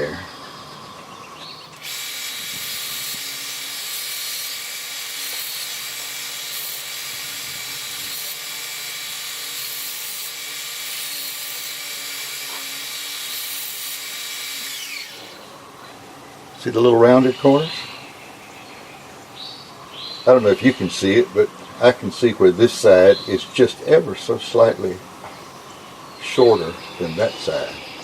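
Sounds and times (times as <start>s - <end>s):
electric sander running: 1.8s - 15.6s.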